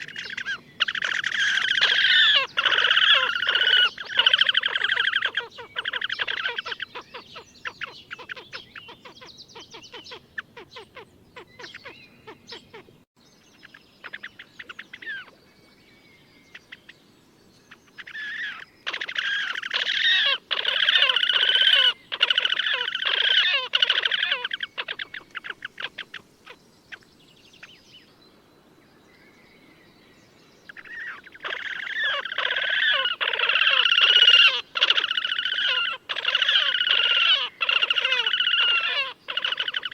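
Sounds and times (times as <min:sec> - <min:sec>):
grebes trilling calls: 0:00.0 - 0:12.9, 0:17.7 - 0:27.1, 0:30.7 - 0:39.9.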